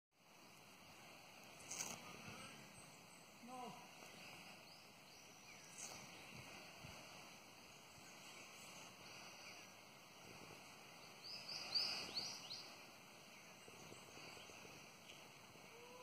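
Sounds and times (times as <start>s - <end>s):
faint forest ambience: 0.2s - 16.0s
bird chirping: 1.6s - 6.8s, 10.6s - 16.0s.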